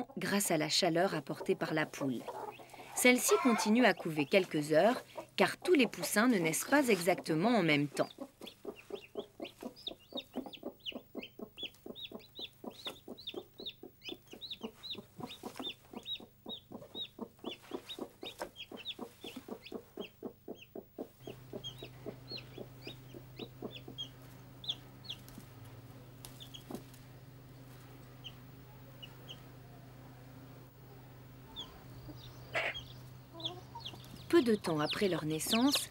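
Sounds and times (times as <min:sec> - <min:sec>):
hen clucking softly: 0:00.0 - 0:00.4, 0:01.0 - 0:25.2, 0:31.5 - 0:34.2
chicks peeping: 0:00.0 - 0:29.6, 0:31.3 - 0:35.9
steady low hum: 0:00.0 - 0:35.9.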